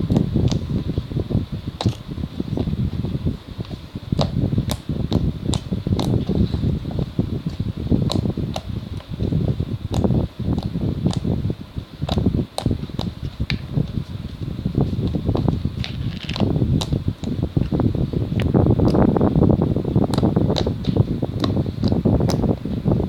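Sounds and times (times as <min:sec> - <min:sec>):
wind rumble on microphone: 0:00.0 - 0:23.0
slime clicking and popping: 0:01.8 - 0:02.0, 0:04.2 - 0:06.3, 0:07.5 - 0:08.7, 0:09.9 - 0:11.3, 0:12.0 - 0:13.2.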